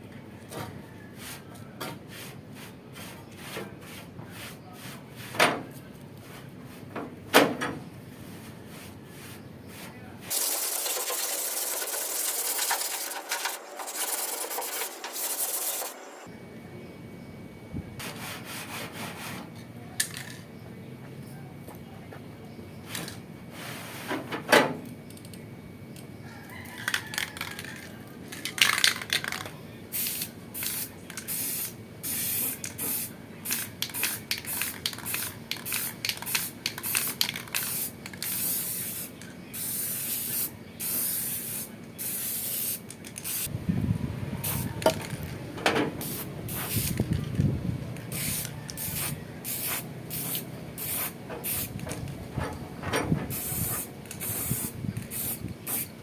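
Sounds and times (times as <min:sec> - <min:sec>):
spray paint can hissing: 0:10.3 - 0:16.2, 0:28.4 - 0:43.5, 0:44.4 - 0:45.3, 0:46.0 - 0:47.3, 0:48.0 - 0:52.1, 0:53.3 - 0:56.0.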